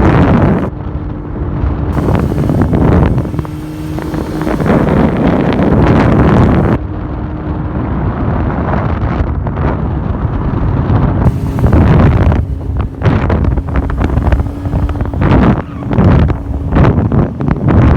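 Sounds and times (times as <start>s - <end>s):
quad bike engine running: 0.0s - 0.7s, 1.8s - 6.8s, 11.3s - 17.9s
wind buffeting microphone: 0.0s - 17.9s.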